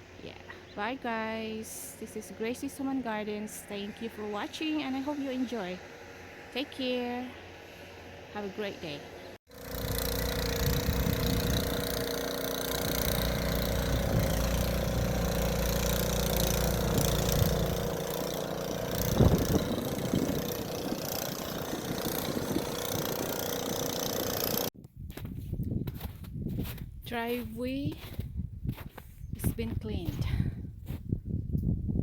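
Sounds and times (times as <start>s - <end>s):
engine running: 0.0s - 24.8s.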